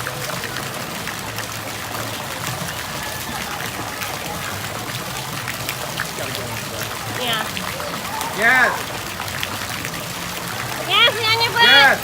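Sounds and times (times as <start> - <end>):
running and splashing water: 0.0 - 12.0
distant children shouting: 1.9 - 5.1, 7.7 - 9.1.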